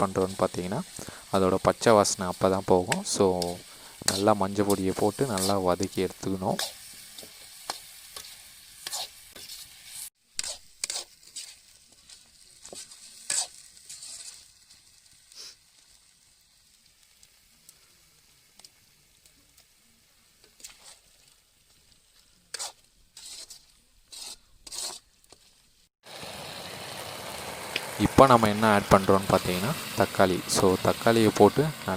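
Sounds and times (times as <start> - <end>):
chicken sizzling in a pan: 0.0 - 31.9
spoon stirring and scraping: 2.3 - 14.7, 20.5 - 21.4, 22.5 - 25.5.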